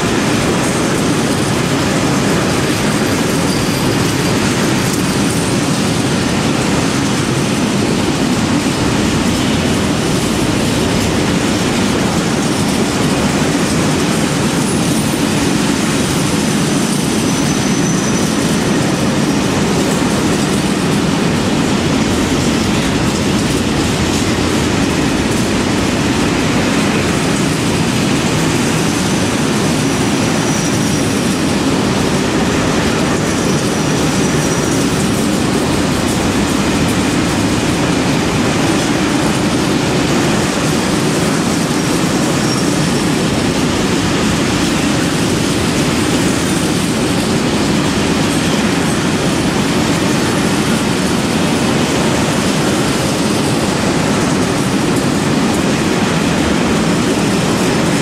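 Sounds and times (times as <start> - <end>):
train wheels rumbling on rails: 0.0 - 58.0
high-pitched wheel squeals: 16.8 - 18.7.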